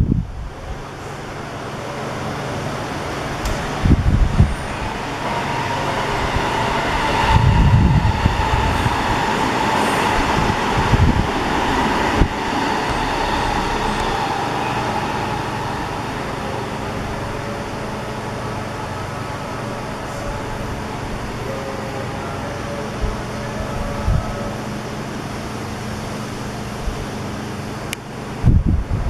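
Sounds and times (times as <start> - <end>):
wind buffeting microphone: 0.0 - 1.0, 3.2 - 16.3, 28.4 - 29.0
jet engines roaring: 2.3 - 19.2.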